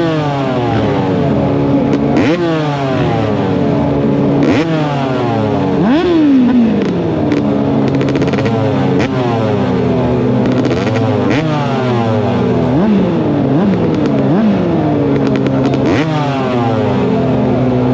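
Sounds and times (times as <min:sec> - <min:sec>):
motorbike engine revving: 0:00.0 - 0:17.9.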